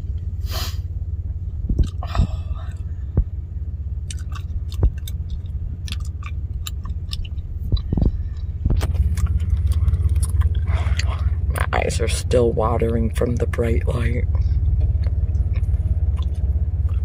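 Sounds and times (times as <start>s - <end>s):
truck engine idling: 0.0s - 17.0s
bubble gum chewing: 1.7s - 3.2s, 4.0s - 11.8s, 14.4s - 17.0s.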